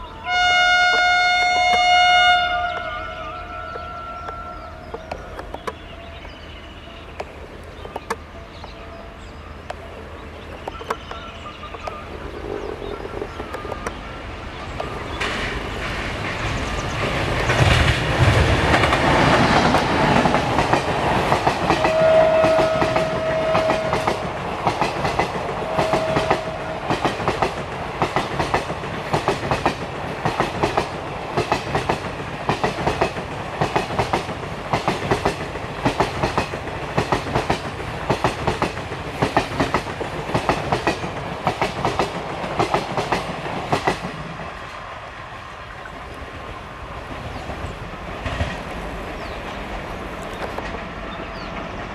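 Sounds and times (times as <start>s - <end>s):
locomotive passing: 0.0s - 51.9s
train wheels clickety-clack: 9.7s - 44.8s, 47.2s - 51.9s.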